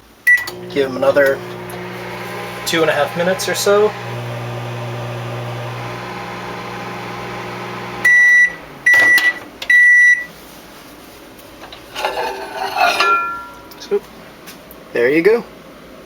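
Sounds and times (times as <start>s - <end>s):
microwave oven humming: 0.3s - 9.6s
microwave beeps: 0.3s - 10.3s.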